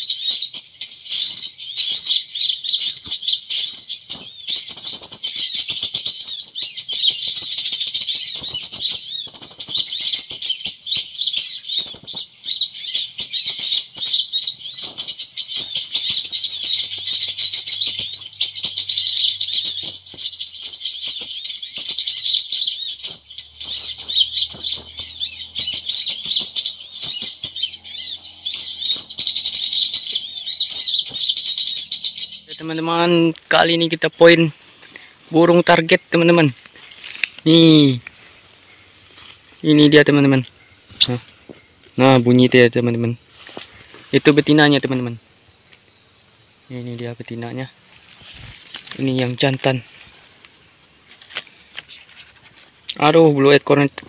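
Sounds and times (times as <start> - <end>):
small birds chirping: 0.0 - 54.0
faint rustles and clicks: 36.6 - 39.6, 47.9 - 53.0.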